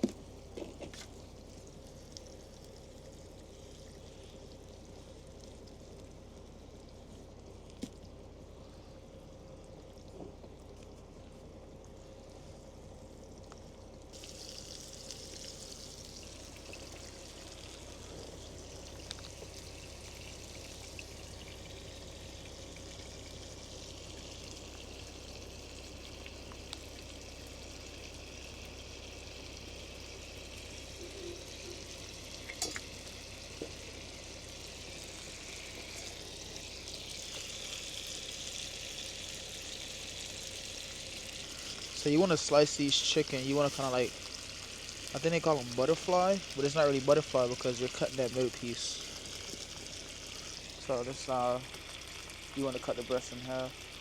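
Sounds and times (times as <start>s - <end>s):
steady low hum: 0.0s - 54.0s
chicken sizzling in a pot: 14.1s - 54.0s.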